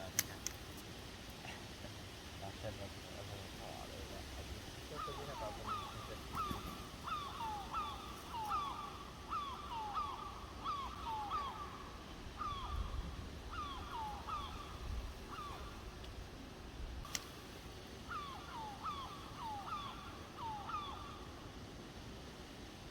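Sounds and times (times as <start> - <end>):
young crows calling: 4.9 - 16.0, 18.0 - 21.5.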